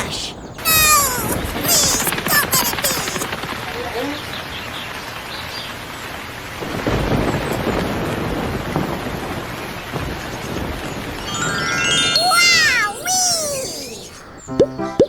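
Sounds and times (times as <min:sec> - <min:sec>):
rain falling: 0:00.0 - 0:15.0
thunder rumble: 0:06.6 - 0:12.7.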